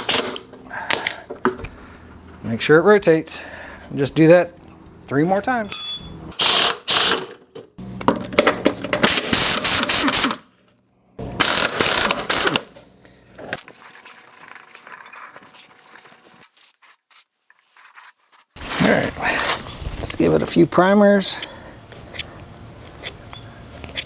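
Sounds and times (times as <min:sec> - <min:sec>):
handling of tools and parts: 0:05.4 - 0:06.2.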